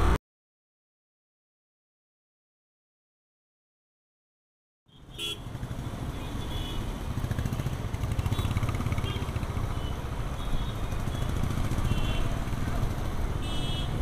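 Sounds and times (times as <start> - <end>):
road traffic rumble: 4.9 - 14.0.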